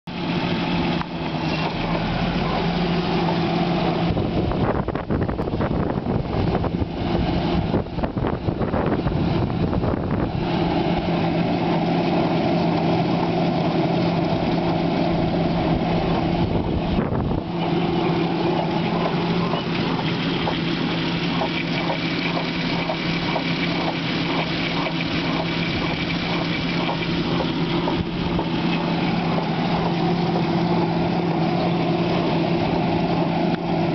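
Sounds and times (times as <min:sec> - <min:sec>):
van engine idling: 0:00.1 - 0:33.9
quick evenly spaced ticks: 0:18.0 - 0:30.6.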